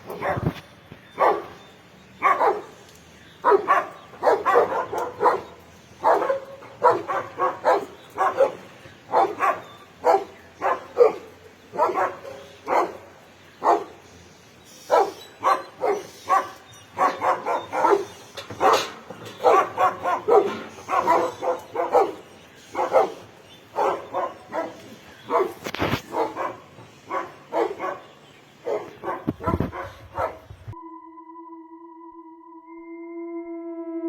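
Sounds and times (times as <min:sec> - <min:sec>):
dog barking: 0:00.0 - 0:00.6, 0:01.2 - 0:01.6, 0:02.2 - 0:02.8, 0:03.4 - 0:14.0, 0:14.8 - 0:30.5
steady music tones: 0:30.0 - 0:34.0.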